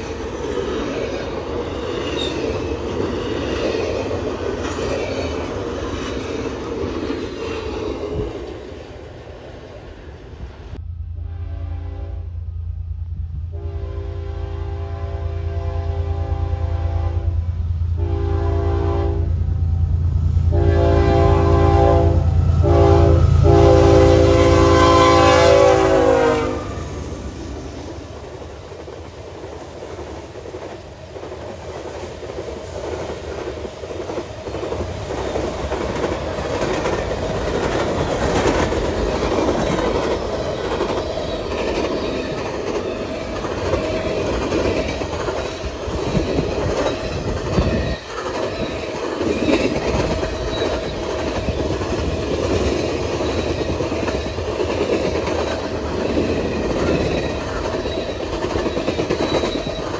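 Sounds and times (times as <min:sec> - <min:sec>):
diesel locomotive rumble: 0:00.0 - 0:59.9
train horn: 0:11.0 - 0:12.5, 0:13.5 - 0:19.6, 0:20.4 - 0:27.1
freight cars clickety-clack: 0:28.0 - 0:59.9.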